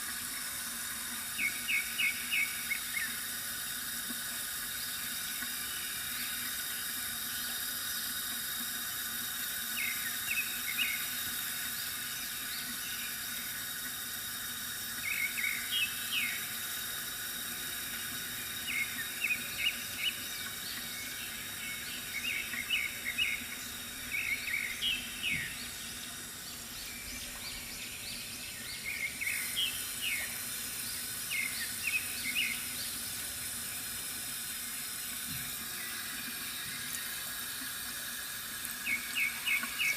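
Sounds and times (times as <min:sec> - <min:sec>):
water trickling: 0:00.0 - 0:39.9
birds chirping: 0:18.7 - 0:33.0.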